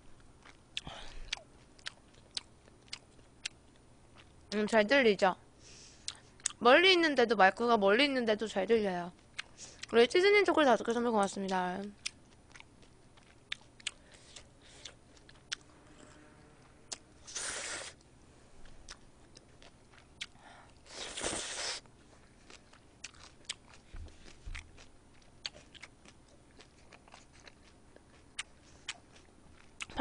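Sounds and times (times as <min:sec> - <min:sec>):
close-up chewing: 0:00.2 - 0:04.4, 0:09.2 - 0:10.0, 0:11.9 - 0:16.2, 0:16.9 - 0:21.2, 0:21.8 - 0:30.0
short hissing rushes: 0:17.2 - 0:18.0.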